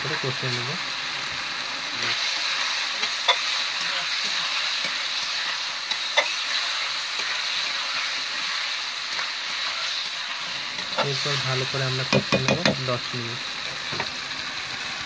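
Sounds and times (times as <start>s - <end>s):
vegetables sizzling in hot oil: 0.0s - 15.0s
spatula knocking on pan: 12.1s - 12.8s.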